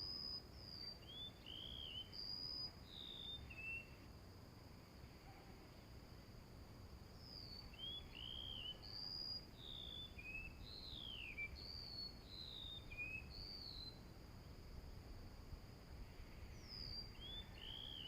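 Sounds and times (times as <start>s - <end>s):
high insect trill: 0.0s - 18.0s
small bird whistling: 0.8s - 4.0s, 7.3s - 14.0s, 16.6s - 18.0s.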